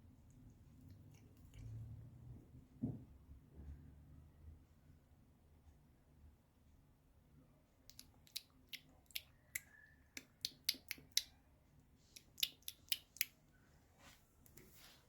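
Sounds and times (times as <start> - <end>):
cat chewing grass: 0.1 - 2.3.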